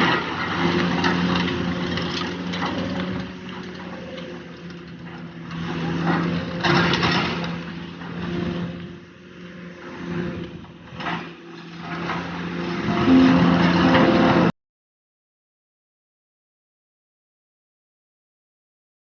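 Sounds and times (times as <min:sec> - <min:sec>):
demolition machine engine running: 0:00.0 - 0:14.5.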